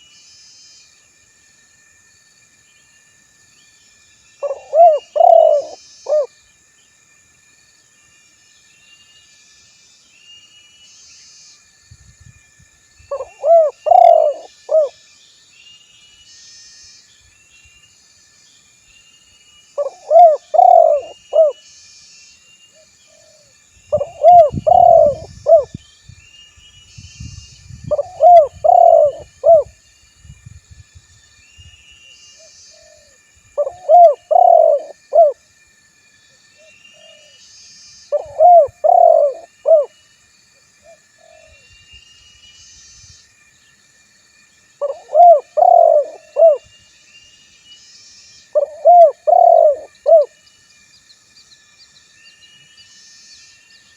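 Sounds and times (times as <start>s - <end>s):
faint insects chirring: 0.0s - 53.9s
dove cooing: 4.4s - 6.3s, 13.1s - 14.9s, 19.8s - 21.6s, 23.9s - 25.8s, 27.9s - 29.7s, 33.0s - 35.4s, 38.1s - 39.9s, 44.8s - 46.6s, 48.6s - 50.3s.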